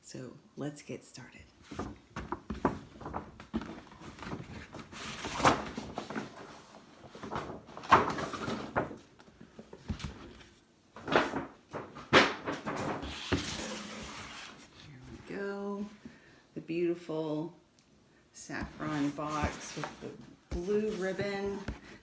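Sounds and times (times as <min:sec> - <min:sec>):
paper rustling and crinkling: 0:01.7 - 0:14.9, 0:18.6 - 0:22.0.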